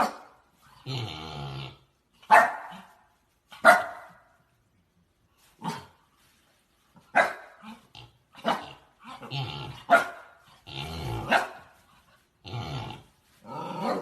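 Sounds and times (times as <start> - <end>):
dog barking: 0.0 - 0.4, 2.2 - 3.0, 3.6 - 4.4, 7.1 - 7.6, 8.4 - 8.7, 9.8 - 10.4, 11.2 - 11.8.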